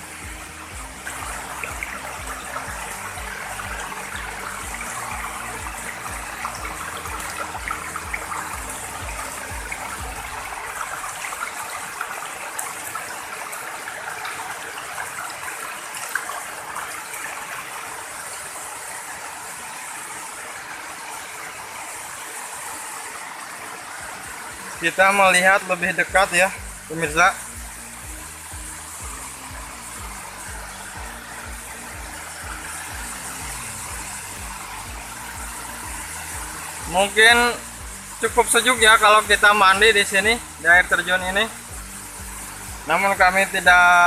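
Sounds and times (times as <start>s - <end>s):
low rhythmic deep tones: 0.0s - 12.6s, 23.9s - 44.0s
waterfall rushing: 0.0s - 44.0s.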